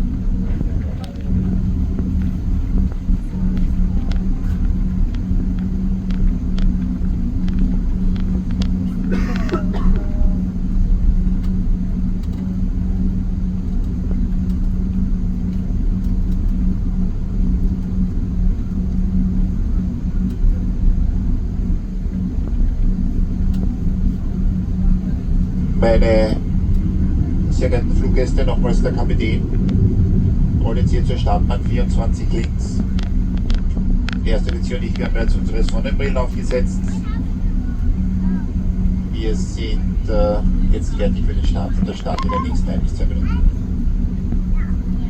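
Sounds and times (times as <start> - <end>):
airplane cabin rumble and hum: 0.0 - 45.0
light clicks and rattles: 0.5 - 10.5, 26.4 - 38.8.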